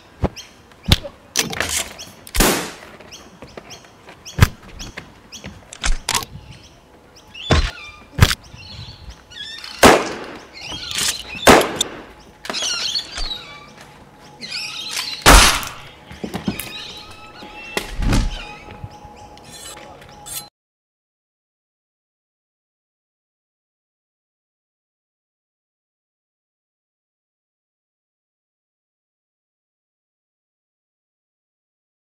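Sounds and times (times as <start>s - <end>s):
birds chirping: 0.0s - 20.5s.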